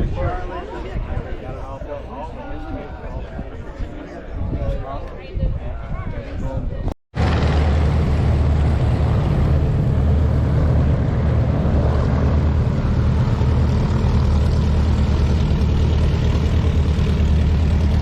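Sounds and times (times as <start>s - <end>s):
propeller airplane engine drone: 7.2s - 18.0s.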